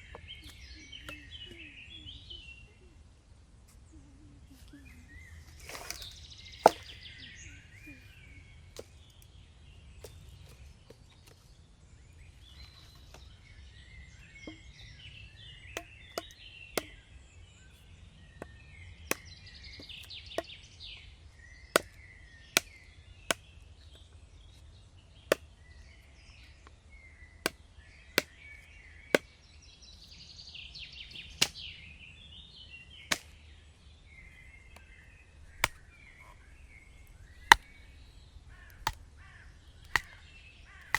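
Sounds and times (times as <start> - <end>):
small birds chirping: 0.0 - 40.9
sharp single knocks: 37.3 - 40.9.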